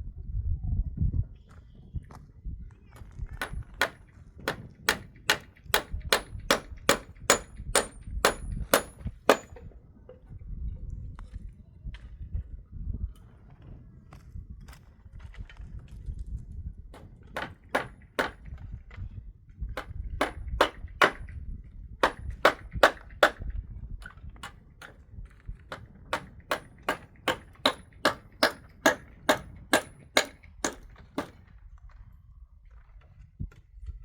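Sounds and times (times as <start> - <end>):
sharp ringing knocks: 3.4 - 9.7, 17.0 - 18.5, 19.8 - 21.3, 22.0 - 23.4, 25.7 - 31.4.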